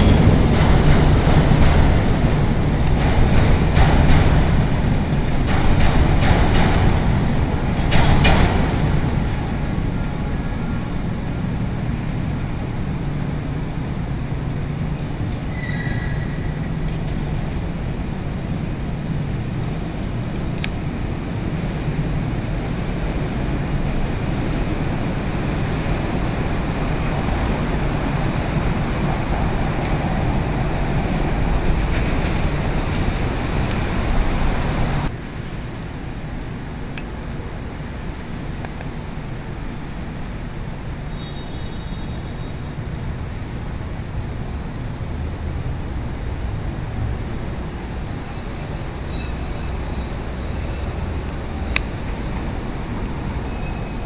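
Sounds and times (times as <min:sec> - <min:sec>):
high train screech: 0:00.0 - 0:18.1, 0:23.4 - 0:35.1, 0:41.0 - 0:43.0, 0:47.6 - 0:54.0
train clattering over rail joints: 0:00.0 - 0:35.2
low city traffic rumble: 0:00.0 - 0:54.0.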